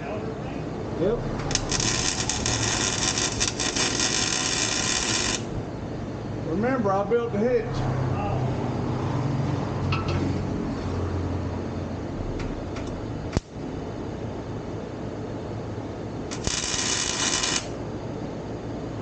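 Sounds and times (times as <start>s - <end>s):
steady low hum: 0.0s - 19.0s
welding arc crackling: 1.3s - 5.6s, 16.3s - 17.8s.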